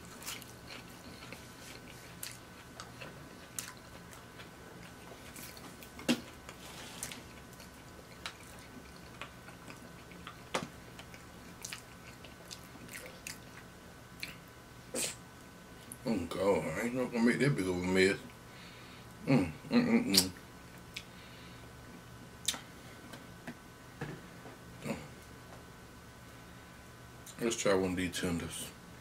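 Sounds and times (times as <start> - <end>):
chewing fried food: 0.0 - 14.6
wet mouth clicks: 20.1 - 20.4.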